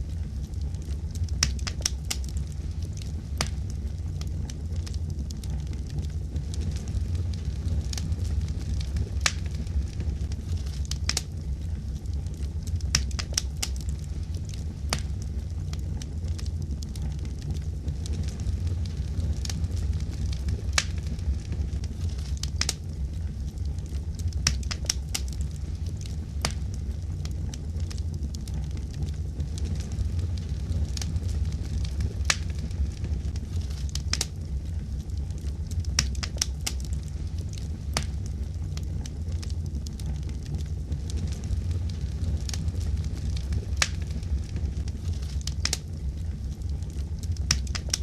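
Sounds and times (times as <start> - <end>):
fire pops and snaps: 0.0 - 48.0
wood fire crackling: 0.0 - 48.0.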